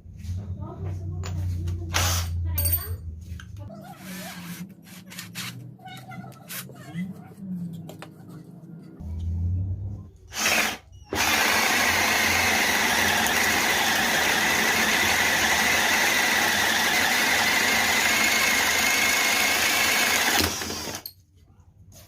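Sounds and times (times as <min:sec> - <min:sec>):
cordless drill motor whining: 0:10.3 - 0:21.1.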